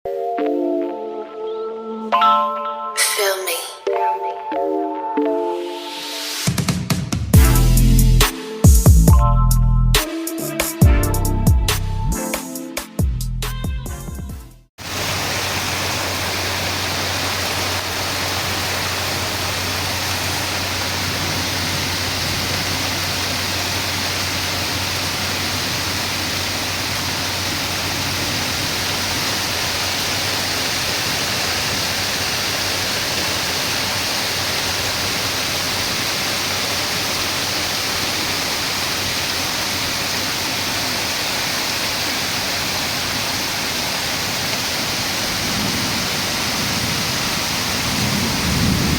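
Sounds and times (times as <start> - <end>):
heavy rain pouring: 14.8 - 48.9.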